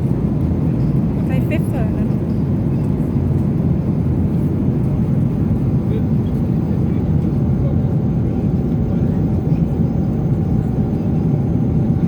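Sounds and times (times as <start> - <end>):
airliner cabin roar: 0.0 - 12.0.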